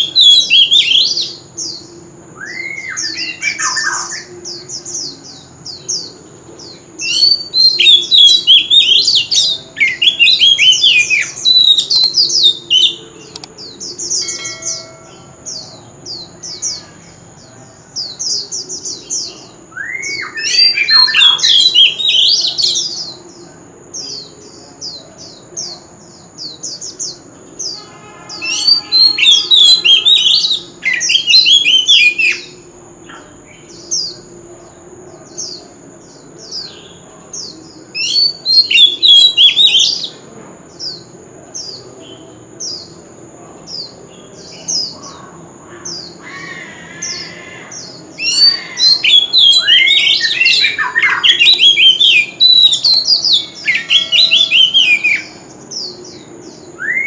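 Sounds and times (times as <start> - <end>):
bird singing whistled phrases: 0.0 - 1.4, 2.4 - 4.6, 7.0 - 17.0, 19.7 - 23.0, 27.7 - 32.6, 38.0 - 40.1, 48.2 - 55.5, 56.8 - 57.0
thin high whine: 14.2 - 17.2.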